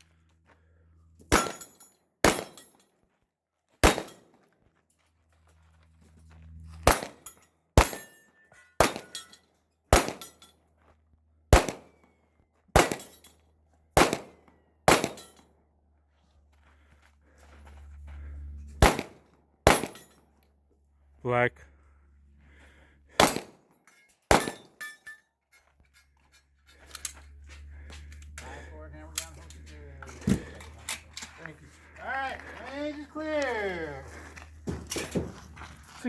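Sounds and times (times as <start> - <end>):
pistol shots: 1.3 - 2.7, 3.8 - 4.3, 6.8 - 7.2, 8.8 - 9.3, 9.9 - 10.4, 11.5 - 12.0, 12.8 - 13.2, 14.0 - 15.4, 18.8 - 20.1, 23.2 - 23.6, 24.3 - 24.8.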